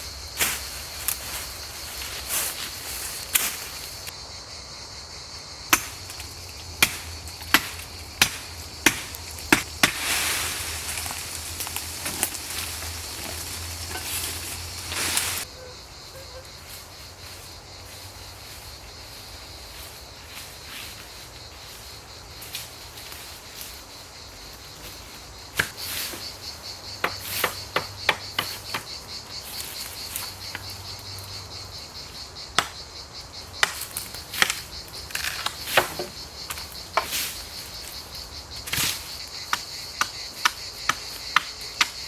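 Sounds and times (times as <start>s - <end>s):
crickets chirring: 0.0s - 42.0s
wood being chopped: 5.7s - 14.8s, 25.6s - 25.8s, 27.0s - 28.9s, 32.6s - 32.8s, 33.6s - 34.6s
scraping or rustling: 9.1s - 15.4s.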